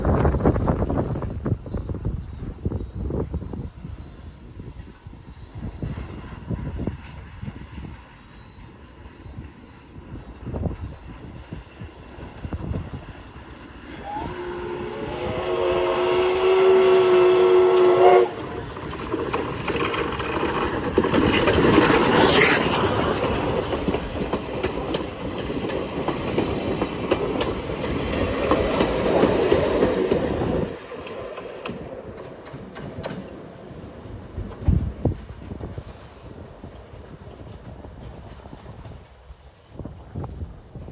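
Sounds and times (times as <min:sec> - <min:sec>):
steam train running noise: 0:00.0 - 0:40.9
train wheel clatter: 0:03.3 - 0:40.9
steam locomotive whistle: 0:13.8 - 0:18.8.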